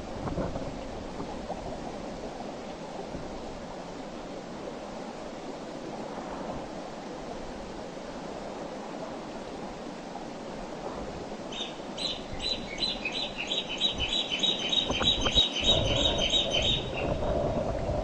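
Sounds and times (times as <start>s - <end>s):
river water flowing: 0.0s - 18.0s
bird chirping: 11.5s - 17.2s.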